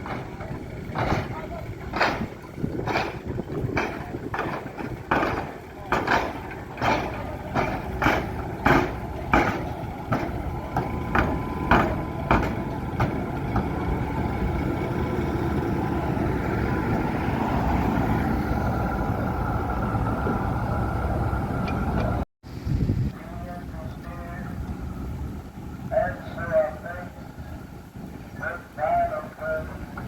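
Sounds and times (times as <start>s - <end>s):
tram running rumble: 0.0s - 22.2s, 22.9s - 30.0s
tram wheels clacking over rail joints: 0.0s - 22.2s.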